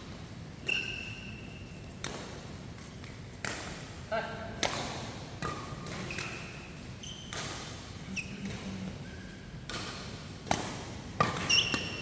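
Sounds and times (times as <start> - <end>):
shoes squeaking on court: 0.6 - 1.9, 5.4 - 9.5, 11.2 - 12.0
racket hitting shuttlecock: 1.9 - 4.0, 4.6 - 7.8, 9.6 - 12.0.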